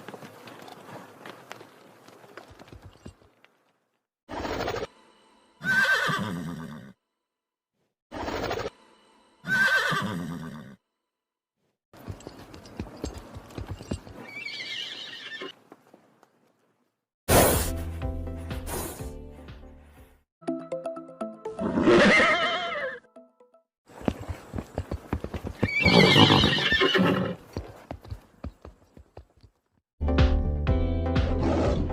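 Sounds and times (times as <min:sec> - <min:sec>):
horse hoofbeats: 0:00.0 - 0:03.7, 0:12.0 - 0:16.1, 0:23.9 - 0:29.8
horse neighing: 0:05.6 - 0:07.0, 0:09.4 - 0:10.8, 0:14.1 - 0:15.6, 0:21.6 - 0:23.0, 0:25.6 - 0:27.4.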